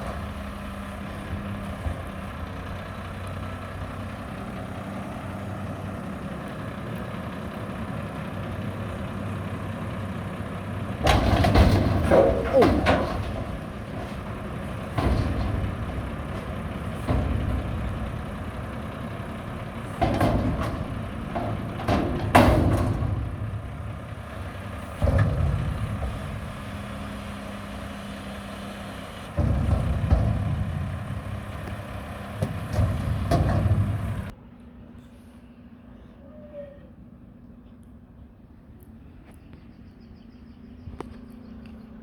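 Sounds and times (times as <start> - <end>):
garbage truck diesel engine surging: 0.0 - 34.4
sharp metal knocks and clanks: 11.0 - 28.0, 29.3 - 34.3.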